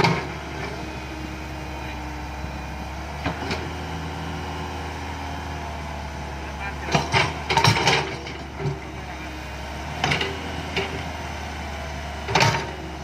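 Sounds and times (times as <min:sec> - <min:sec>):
diesel machinery engine humming: 0:00.0 - 0:13.0
metal clanks: 0:06.8 - 0:09.0, 0:12.3 - 0:12.8.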